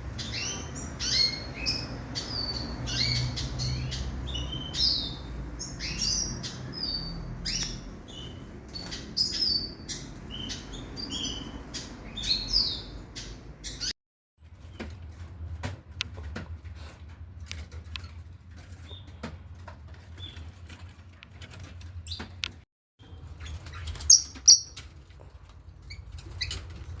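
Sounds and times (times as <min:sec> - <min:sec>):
caged birds chirping and calling: 0:00.0 - 0:27.0
loud bird calls: 0:23.8 - 0:24.8.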